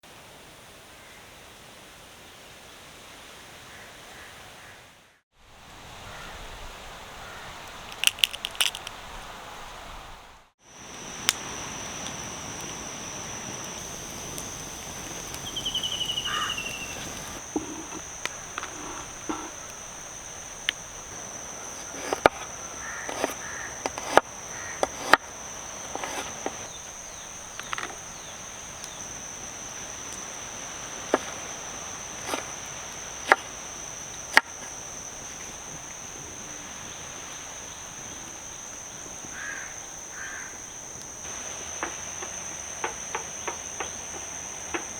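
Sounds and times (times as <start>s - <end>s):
insect drone: 5.4s - 44.9s
bird call sliding down: 13.8s - 19.7s, 20.4s - 25.2s, 25.8s - 26.8s.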